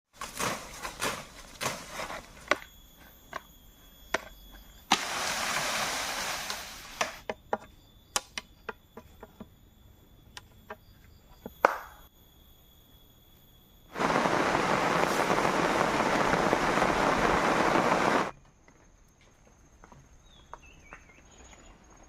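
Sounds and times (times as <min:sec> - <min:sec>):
burst of hiss: 0:04.9 - 0:07.2, 0:14.0 - 0:18.3.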